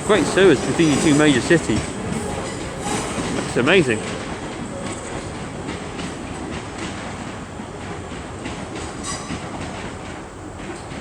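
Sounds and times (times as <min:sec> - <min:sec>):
train wheel squeal: 0:00.0 - 0:07.2, 0:09.0 - 0:09.8
train wheels rolling over rail joints: 0:00.0 - 0:11.0.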